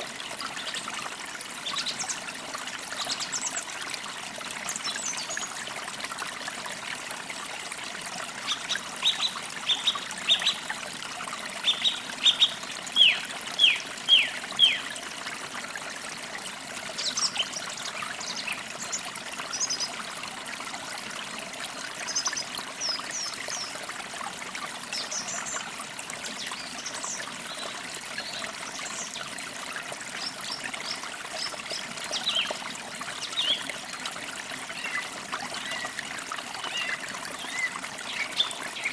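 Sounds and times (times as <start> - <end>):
stream trickling: 0.0 - 38.9
birds chirping: 11.6 - 14.8.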